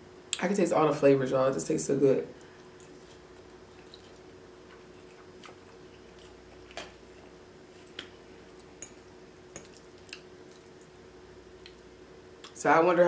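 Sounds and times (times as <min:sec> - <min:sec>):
faint steady hum: 0:00.0 - 0:13.0
chewing noodles: 0:02.5 - 0:07.0, 0:07.8 - 0:11.0.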